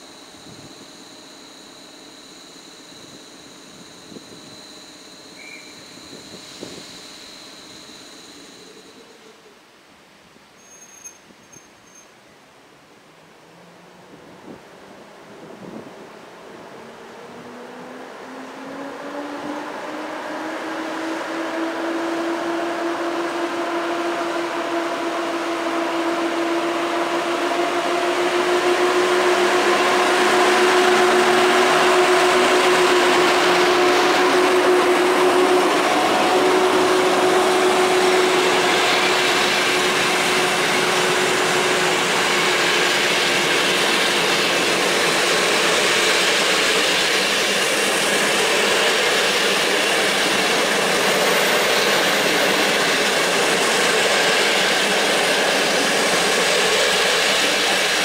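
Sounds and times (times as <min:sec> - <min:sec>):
locomotive hum: 0:00.0 - 0:09.9, 0:13.3 - 0:58.0
train wheels rolling on rails: 0:18.1 - 0:58.0.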